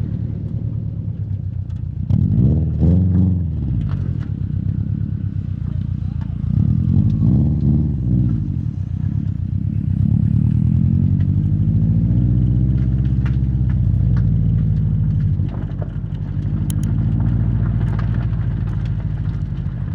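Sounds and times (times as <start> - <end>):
car exhaust while driving: 0.0 - 19.9
light ticks: 12.7 - 19.7.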